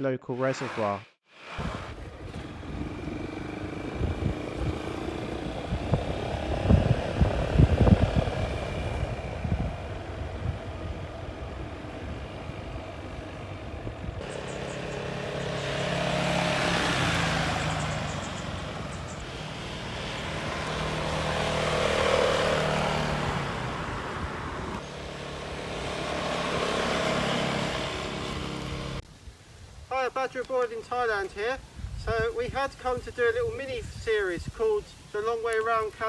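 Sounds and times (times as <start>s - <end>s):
wind and road noise: 0.4s - 36.0s
scooter engine running: 1.6s - 29.0s.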